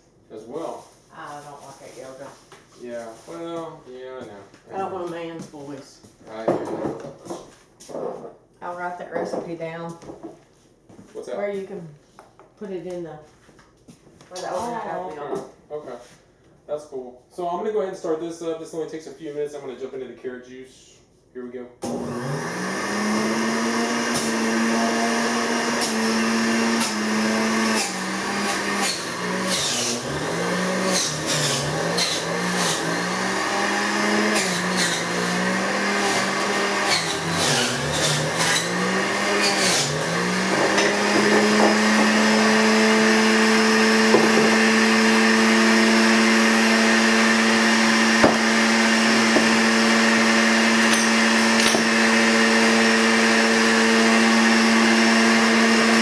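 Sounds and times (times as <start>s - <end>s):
electric juicer motor humming: 21.8s - 56.0s
carrots knocking and rattling: 40.4s - 42.5s.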